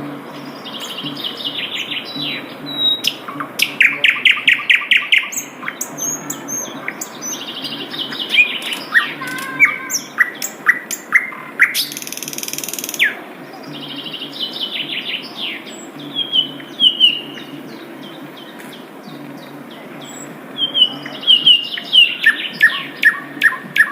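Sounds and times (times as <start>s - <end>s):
steady low hum: 0.0s - 8.5s
bird singing chirps and trills: 0.0s - 23.9s.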